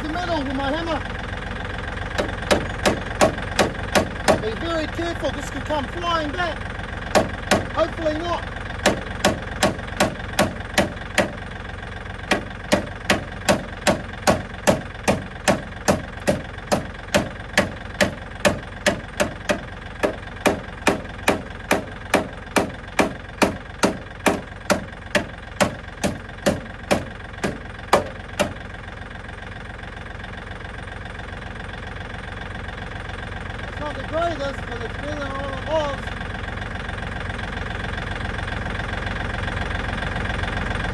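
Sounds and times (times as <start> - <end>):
tractor engine idling: 0.0 - 40.9
hammer striking steel: 2.2 - 4.6, 7.1 - 7.8, 8.8 - 11.4, 12.3 - 28.6.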